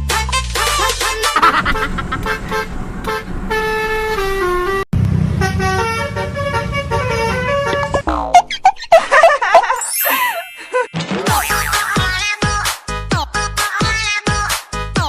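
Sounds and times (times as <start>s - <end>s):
bus horn playing a tune: 0.1s - 8.0s
low engine rumble: 0.7s - 8.0s.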